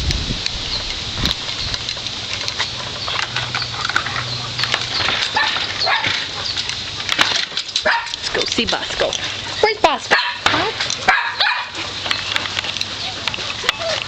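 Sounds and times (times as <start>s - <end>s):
clicks and rustles: 0.4s - 14.0s
dogs whining: 2.5s - 8.6s, 9.2s - 14.0s.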